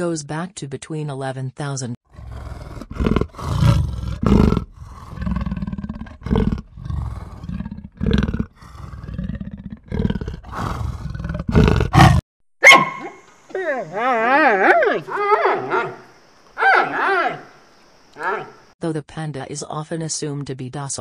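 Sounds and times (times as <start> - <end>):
leopard rasping call: 2.1 - 18.7.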